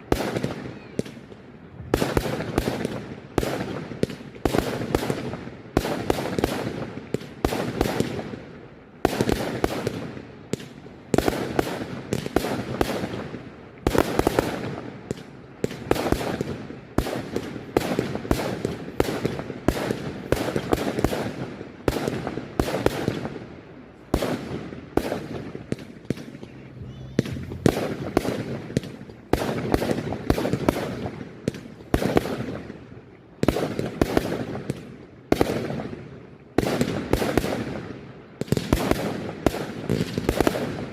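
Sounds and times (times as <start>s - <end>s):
fireworks bangs: 0.0s - 8.4s, 9.0s - 23.4s, 24.0s - 32.8s.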